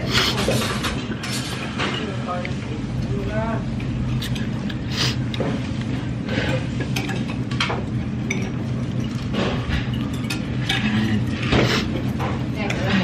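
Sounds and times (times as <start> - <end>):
dishes and cutlery clinking: 0.0 - 2.4, 5.4 - 13.0
low restaurant hum: 0.0 - 13.0.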